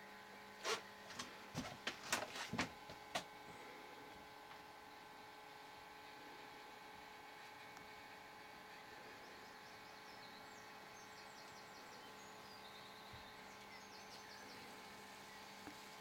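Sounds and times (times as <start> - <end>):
faint steady hum: 0.0 - 16.0
birds chirping: 8.7 - 16.0.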